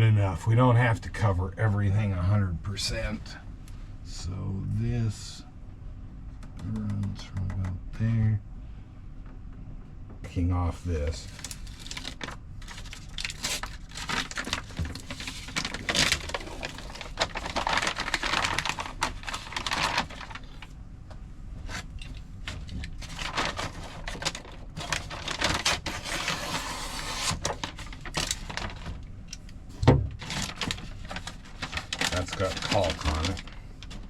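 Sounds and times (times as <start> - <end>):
backing paper crinkling and rustling: 10.9 - 20.8, 21.6 - 34.0
heavy thump: 29.8 - 30.2.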